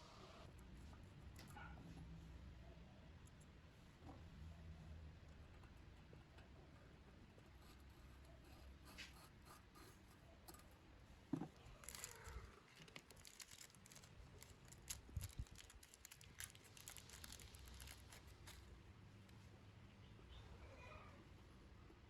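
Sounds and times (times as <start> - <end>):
small parts and tools clicking: 11.6 - 18.8.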